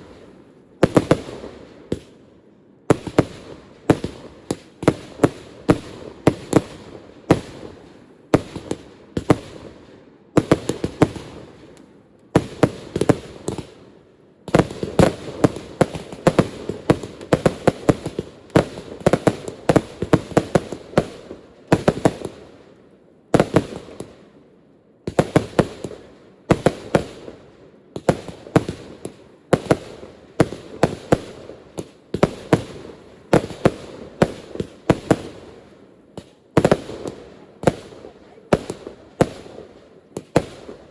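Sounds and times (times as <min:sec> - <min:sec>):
fireworks bangs: 0:28.0 - 0:40.9.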